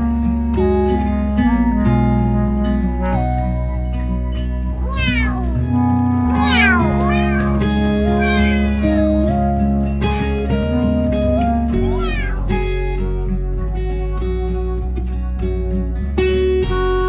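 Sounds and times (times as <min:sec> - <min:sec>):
cat meowing: 0:04.8 - 0:09.4, 0:11.8 - 0:12.6.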